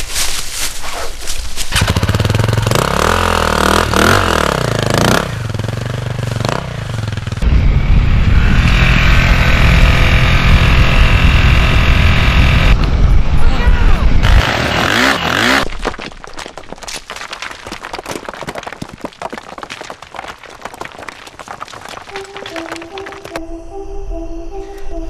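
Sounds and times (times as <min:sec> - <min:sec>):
dirt bike engine revving: 0:01.7 - 0:12.8, 0:14.2 - 0:15.6.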